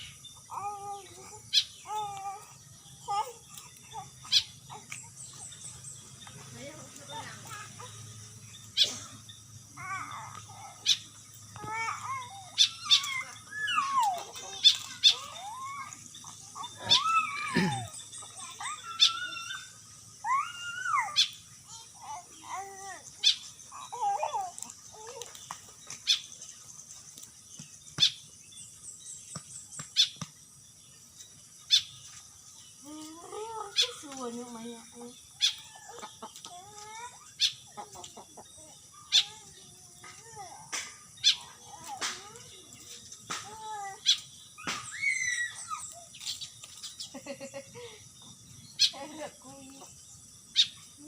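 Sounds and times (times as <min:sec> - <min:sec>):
starling sharp calls: 0:00.0 - 0:30.4, 0:31.6 - 0:51.0
starling whistled calls: 0:03.0 - 0:21.4, 0:44.0 - 0:47.1
faint high chirps: 0:31.1 - 0:51.0.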